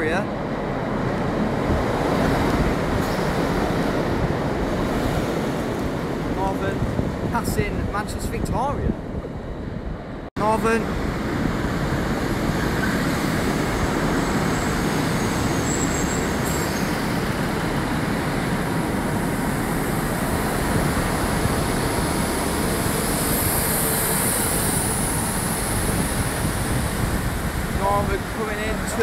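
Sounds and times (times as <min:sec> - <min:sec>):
passenger train passing: 0:00.0 - 0:29.0
high wheel squeal: 0:12.2 - 0:27.0.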